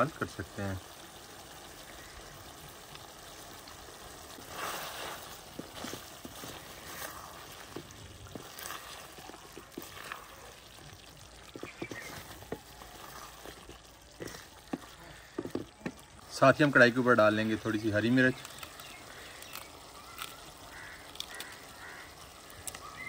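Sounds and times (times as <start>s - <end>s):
chicken sizzling in oil: 0.0s - 23.0s
spatula scraping and tapping pan: 11.5s - 12.7s, 13.4s - 16.0s.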